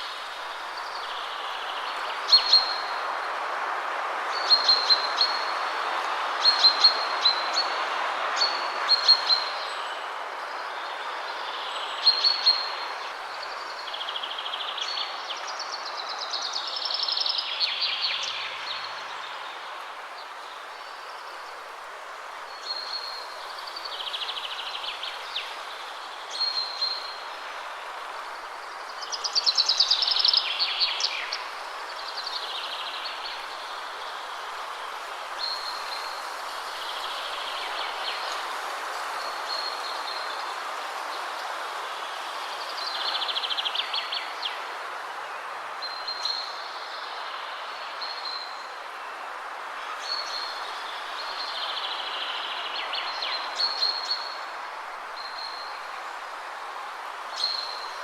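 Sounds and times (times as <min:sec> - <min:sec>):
wind rushing through trees: 0:00.0 - 0:58.0
songbirds singing: 0:22.4 - 0:56.4.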